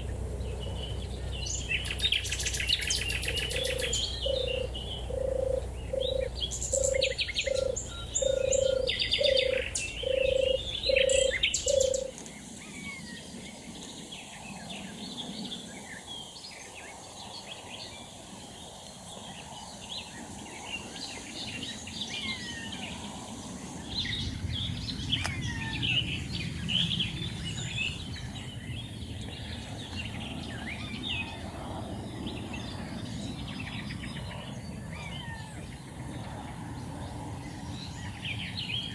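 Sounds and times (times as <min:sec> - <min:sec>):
dove purring: 0:00.0 - 0:12.2
songbirds chirping: 0:00.0 - 0:38.9.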